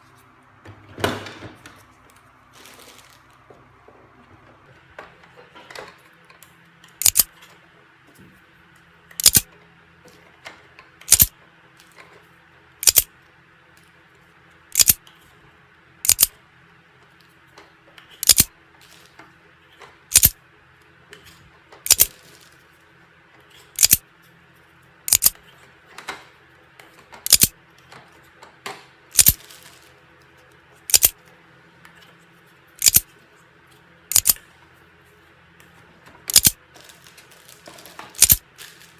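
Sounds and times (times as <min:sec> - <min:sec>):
plastic clicks of loading darts: 0:06.9 - 0:07.4, 0:09.1 - 0:09.5, 0:11.0 - 0:11.4, 0:12.8 - 0:13.1, 0:14.7 - 0:15.1, 0:16.0 - 0:16.3, 0:18.0 - 0:19.0, 0:20.1 - 0:20.4, 0:21.8 - 0:22.2, 0:23.7 - 0:24.0, 0:25.1 - 0:25.4, 0:27.2 - 0:29.8, 0:30.9 - 0:31.2, 0:32.8 - 0:33.1, 0:34.1 - 0:34.4, 0:36.3 - 0:36.6, 0:37.8 - 0:38.9.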